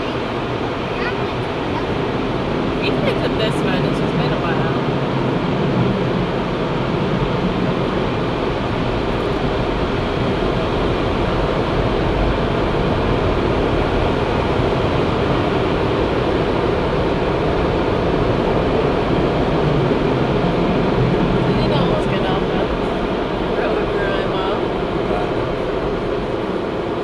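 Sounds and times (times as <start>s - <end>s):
car wash machinery rushing: 0.0s - 27.0s.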